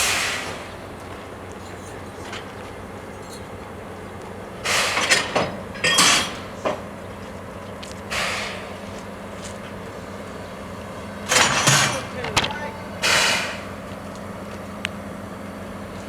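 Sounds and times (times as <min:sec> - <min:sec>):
train brake air hissing: 0:00.0 - 0:00.8, 0:04.6 - 0:06.6, 0:08.1 - 0:09.2, 0:12.7 - 0:13.9
low locomotive hum: 0:00.0 - 0:16.0.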